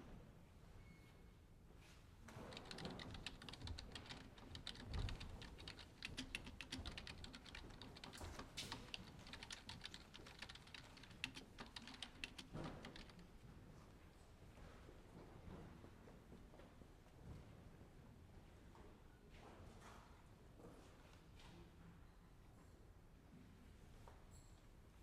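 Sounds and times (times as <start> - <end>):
typing on computer keyboard: 2.4 - 13.2.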